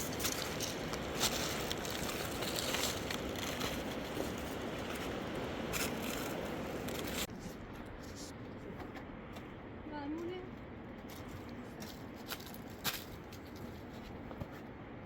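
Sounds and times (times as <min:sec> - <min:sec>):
dense crackling and scraping: 0:00.0 - 0:08.4
steady rushing noise: 0:00.0 - 0:09.8.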